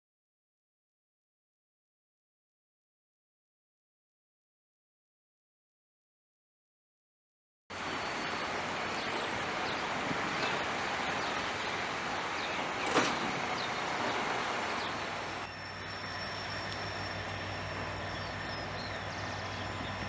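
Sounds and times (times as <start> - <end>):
steady outdoor rushing noise: 7.7 - 20.0
low steady hum: 7.8 - 20.0
faint bird-like chirps: 14.8 - 20.0.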